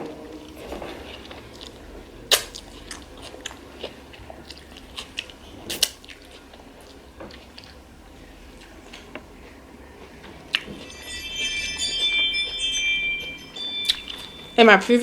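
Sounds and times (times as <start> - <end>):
chewing food: 0.4 - 10.8.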